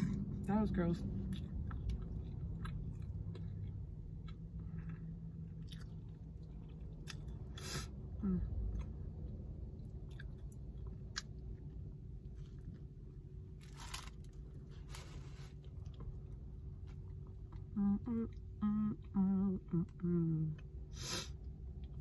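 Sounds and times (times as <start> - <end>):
low hum: 0.0 - 22.0
person chewing: 1.2 - 13.0
person humming while chewing: 8.1 - 8.8, 17.5 - 20.7.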